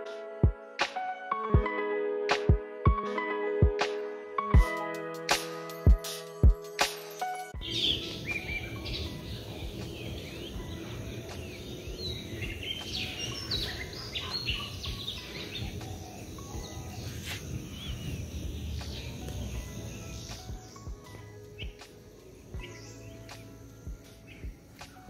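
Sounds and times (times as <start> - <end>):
low outdoor background noise: 7.6 - 25.0
small birds chirping: 7.6 - 25.0.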